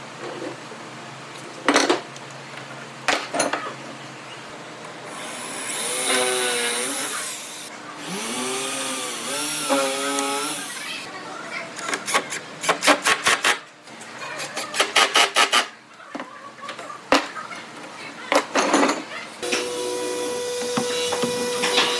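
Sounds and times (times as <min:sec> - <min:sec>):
power tool motor running: 0:05.1 - 0:11.1, 0:19.4 - 0:21.9.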